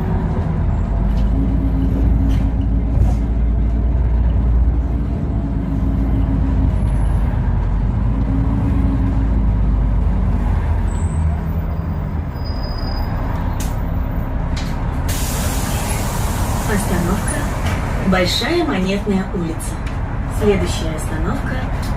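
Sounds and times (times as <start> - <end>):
bus engine rumble and drone: 0.0 - 21.9
compressed air hiss: 15.1 - 17.6.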